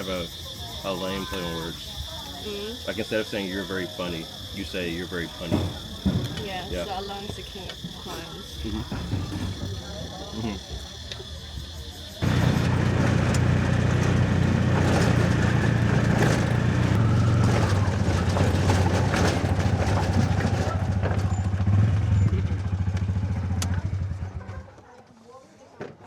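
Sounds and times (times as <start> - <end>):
small engine running: 12.1 - 24.4
road and wind noise: 12.2 - 24.2.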